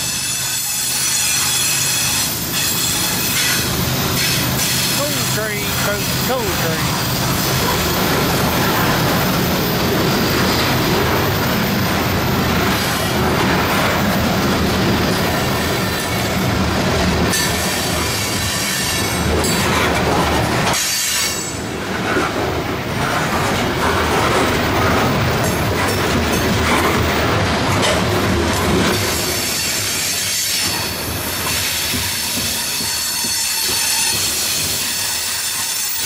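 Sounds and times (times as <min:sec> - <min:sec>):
high wheel squeal: 0:00.0 - 0:11.8, 0:29.2 - 0:36.0
steel wheels rumbling on rail: 0:00.0 - 0:36.0
wheels clacking over rail joints: 0:00.0 - 0:36.0.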